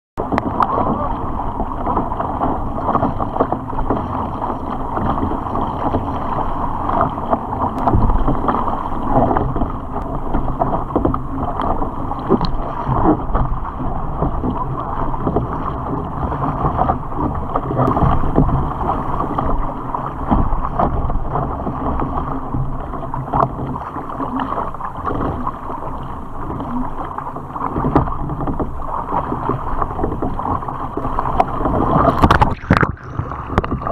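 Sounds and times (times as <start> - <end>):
water splashing along kayak hull: 0.2 - 33.9
small knocks and ticks: 10.3 - 12.6.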